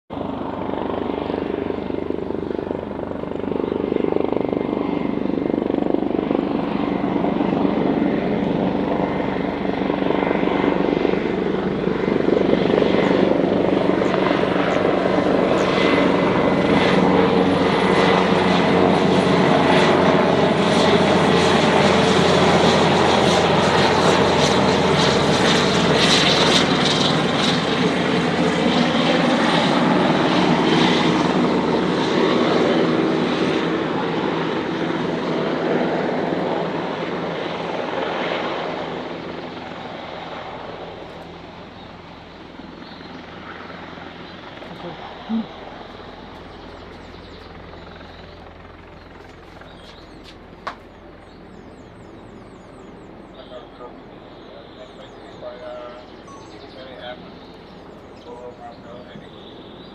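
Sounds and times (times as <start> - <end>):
helicopter rotor and engine: 0.1 - 59.9
turbine whine: 38.7 - 59.9.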